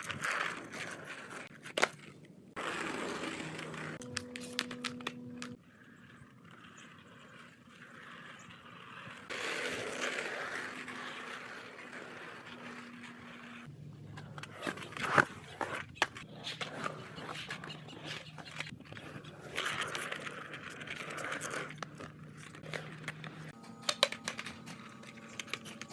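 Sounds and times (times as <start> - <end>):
skateboard clicks: 0.0 - 25.9
skateboard wheels rolling: 0.0 - 25.9
skateboard clack: 6.4 - 25.9.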